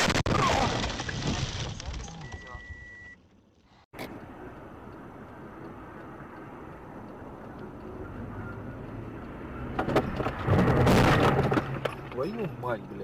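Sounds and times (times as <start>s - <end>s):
car road and engine noise: 2.1s - 13.0s
loud bangs and clatter: 9.8s - 12.1s.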